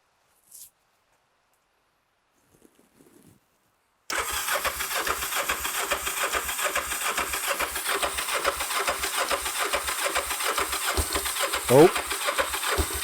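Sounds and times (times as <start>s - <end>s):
electric starter cranking engine: 4.1s - 13.0s.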